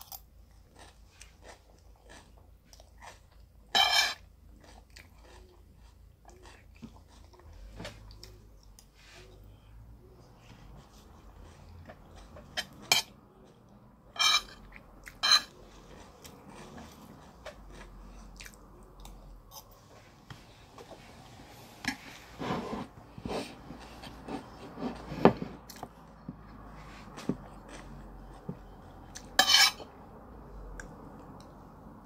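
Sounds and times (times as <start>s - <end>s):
chewing with lip smacks: 4.5s - 8.9s, 14.6s - 19.6s, 25.7s - 29.4s.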